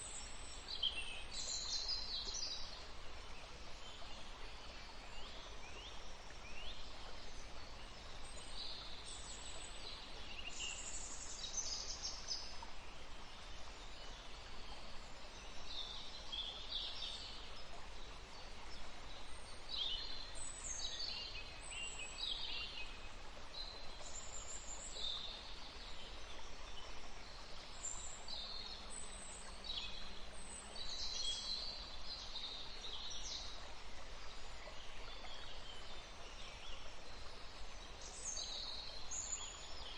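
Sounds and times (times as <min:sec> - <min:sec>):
small songbirds chirping: 0:00.0 - 0:39.9
steady background hiss: 0:00.0 - 0:39.9.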